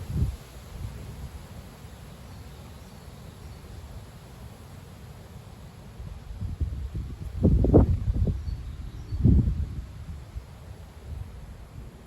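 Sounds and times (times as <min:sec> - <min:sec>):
wind gusts buffeting microphone: 0:00.0 - 0:01.5, 0:06.0 - 0:12.0.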